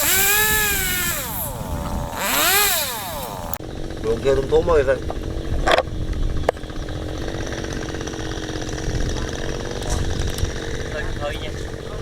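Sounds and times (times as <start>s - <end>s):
chainsaw engine running: 0.0s - 4.0s, 6.8s - 12.0s.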